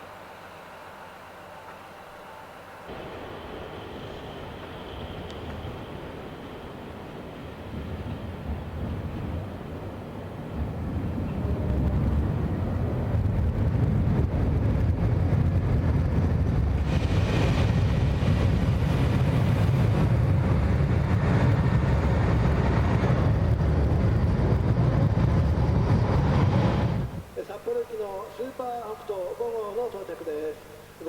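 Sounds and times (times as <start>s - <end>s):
train hiss: 0.0s - 8.3s
diesel train rumbling: 0.0s - 28.8s.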